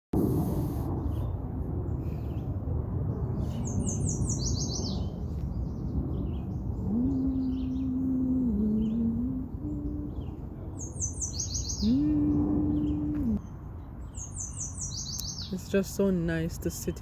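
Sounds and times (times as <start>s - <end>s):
low rumble: 0.2s - 13.5s
birds chirping: 2.2s - 17.0s.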